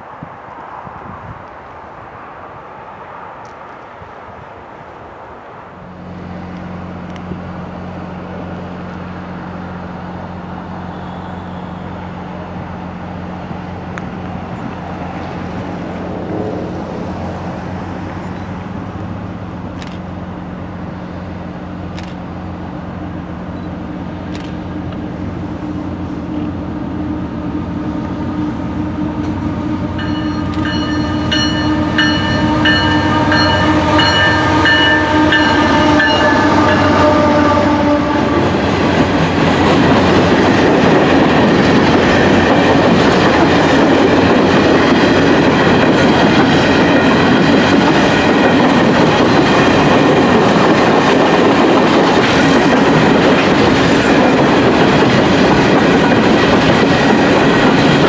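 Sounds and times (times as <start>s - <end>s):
diesel locomotive engine drone: 0.0s - 58.0s
train horn: 26.2s - 38.6s.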